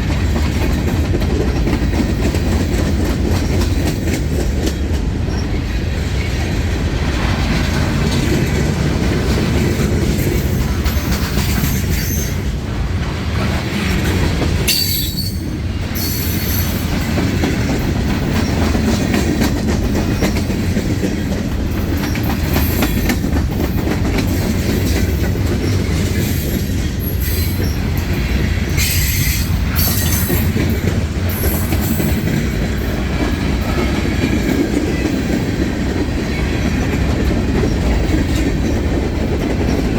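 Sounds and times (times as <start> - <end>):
train wheels rumbling on rail: 0.0 - 39.9
high-pitched wheel squeals: 14.7 - 16.7.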